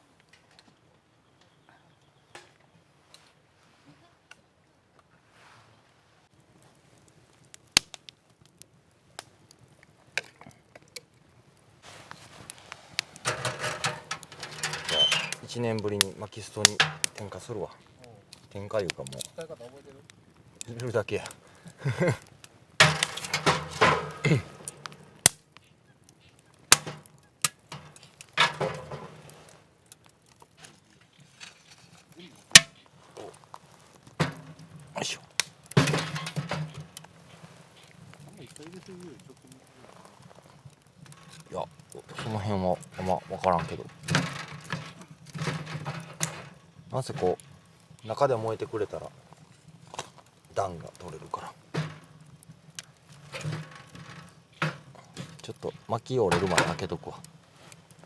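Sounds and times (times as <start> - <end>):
rustling clatter: 11.8 - 17.5, 22.8 - 25.4, 26.7 - 58.0
hard objects knocking and clacking: 13.2 - 15.6, 16.6 - 17.4, 22.8 - 25.4, 26.7 - 29.6, 34.1 - 37.1, 41.3 - 47.6, 51.0 - 57.0.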